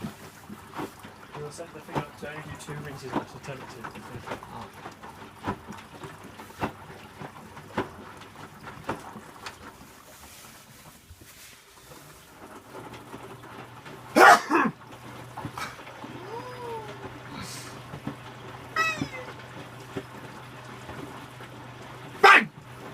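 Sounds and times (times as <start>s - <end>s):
low steady hum: 11.8s - 22.9s
pet calling: 18.7s - 19.4s.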